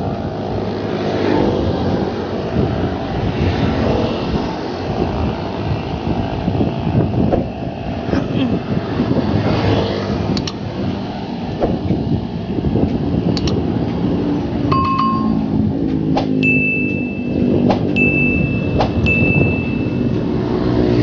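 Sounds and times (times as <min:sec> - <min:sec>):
engine drone: 0:00.0 - 0:21.0
road traffic: 0:00.0 - 0:21.0
wind rumble: 0:00.0 - 0:21.0
short electronic beeps: 0:14.7 - 0:15.5, 0:16.4 - 0:17.4, 0:18.0 - 0:20.1.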